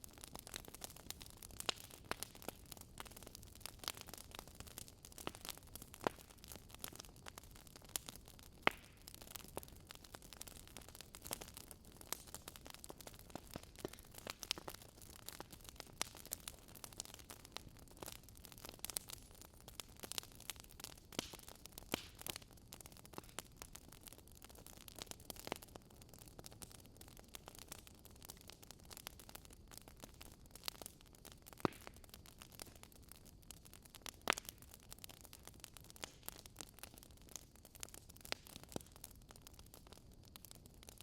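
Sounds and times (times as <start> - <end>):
wood fire crackling: 0.0 - 41.0.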